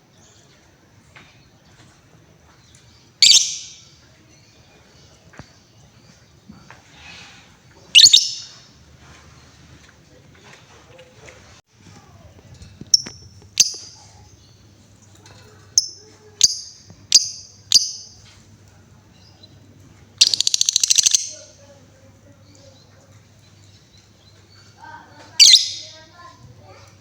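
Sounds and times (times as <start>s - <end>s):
lovebird high chirps: 3.2s - 3.9s, 7.9s - 8.7s, 12.9s - 14.4s, 15.8s - 18.3s, 20.2s - 21.6s, 25.3s - 26.0s
lovebird buzzy rattling trill: 15.8s - 18.2s, 20.2s - 21.6s.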